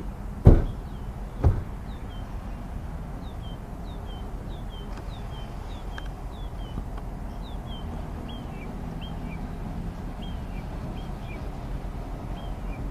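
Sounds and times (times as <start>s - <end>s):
dull thumps: 0.4s - 2.0s.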